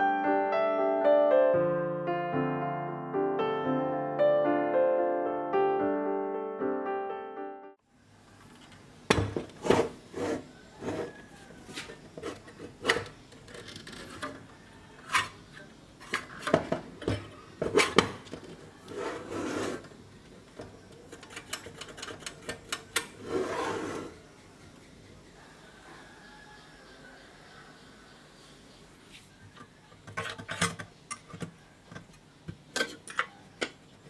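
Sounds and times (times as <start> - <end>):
tools and parts clicking: 12.0 - 18.6, 20.6 - 23.2, 29.6 - 33.8.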